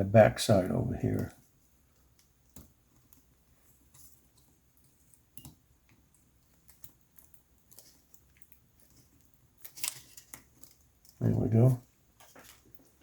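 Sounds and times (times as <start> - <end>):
plastic laptop parts clicking: 9.6 - 11.2.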